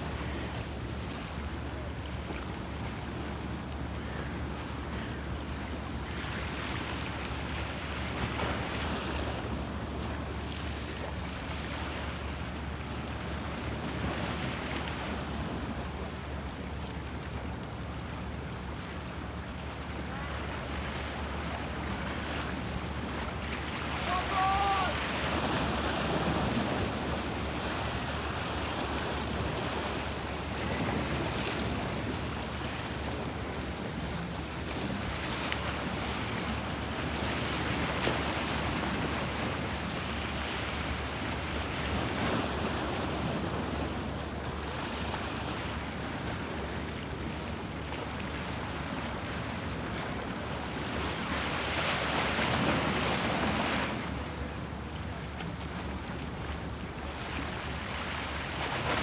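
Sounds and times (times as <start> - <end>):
sea waves washing and splashing: 19.4 - 59.0.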